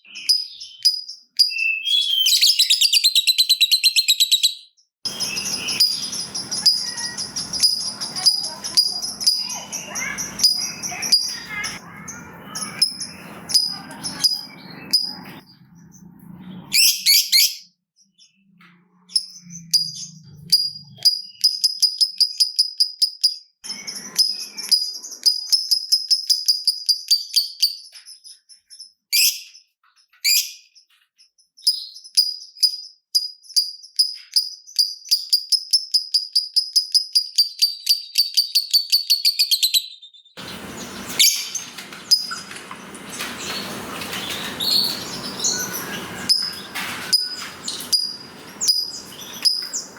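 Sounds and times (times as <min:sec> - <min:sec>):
lovebird ticking chatter: 0:05.1 - 0:11.8, 0:12.5 - 0:15.2, 0:20.5 - 0:27.8, 0:40.4 - 0:49.9.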